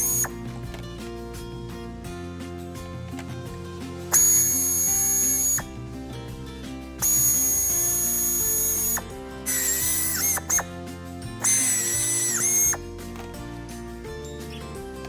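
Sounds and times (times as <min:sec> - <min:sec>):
high mechanical whine: 0:00.0 - 0:00.4, 0:04.1 - 0:05.7, 0:07.0 - 0:10.6, 0:11.4 - 0:12.8
background music: 0:00.0 - 0:15.0.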